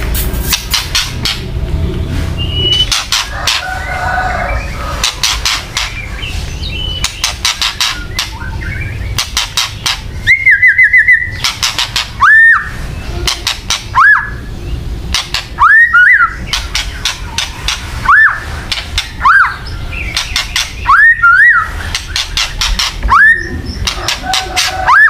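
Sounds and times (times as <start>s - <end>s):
bird clicking rattles: 21.9s - 23.1s.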